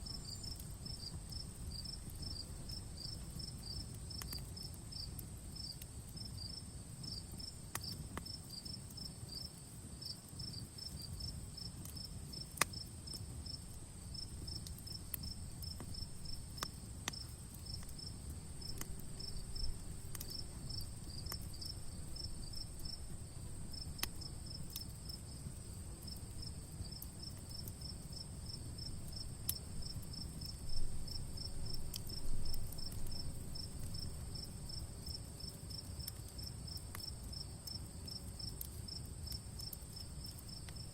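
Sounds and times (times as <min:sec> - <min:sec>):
campfire crackling and popping: 0:00.0 - 0:40.9
crickets chirping: 0:00.0 - 0:40.9
high insect trill: 0:13.4 - 0:25.4, 0:26.1 - 0:40.9.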